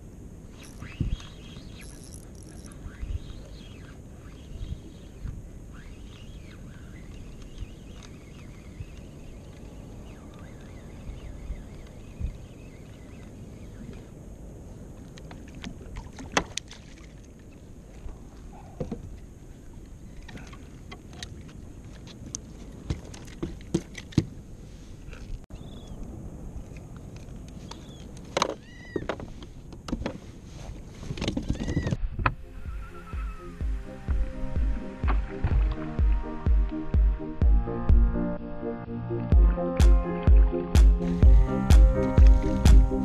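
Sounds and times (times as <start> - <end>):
water lapping against kayak hull: 14.9 - 25.4, 34.4 - 36.4.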